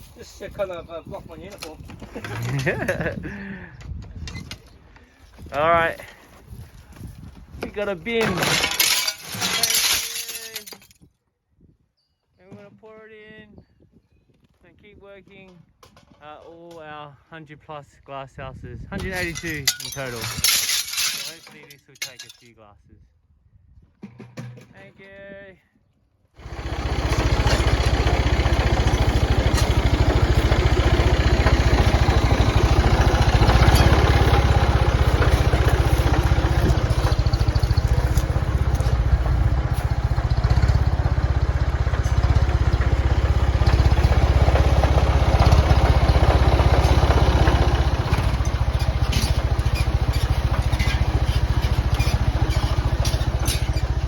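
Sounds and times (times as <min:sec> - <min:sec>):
tractor engine running: 0:19.0 - 0:22.1, 0:26.4 - 0:54.0.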